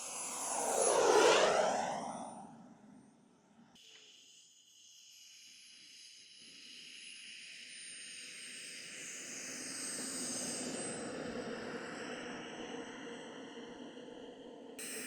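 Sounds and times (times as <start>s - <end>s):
model aircraft whine: 0.0s - 2.6s.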